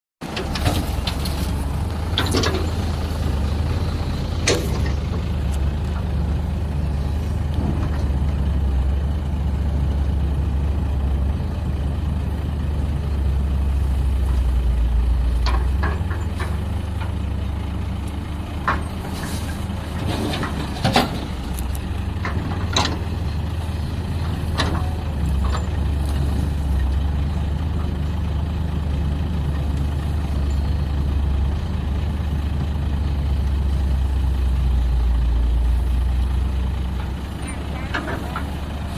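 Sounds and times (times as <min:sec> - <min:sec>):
excavator diesel engine running: 0:00.2 - 0:38.9.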